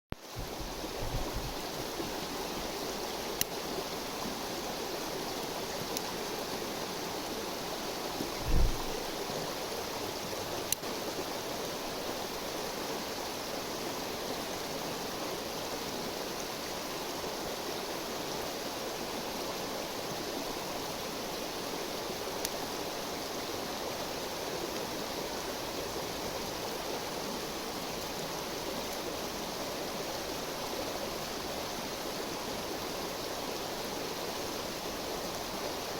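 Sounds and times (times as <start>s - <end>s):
river water flowing: 0.2s - 35.9s
brief low thump: 8.4s - 8.9s.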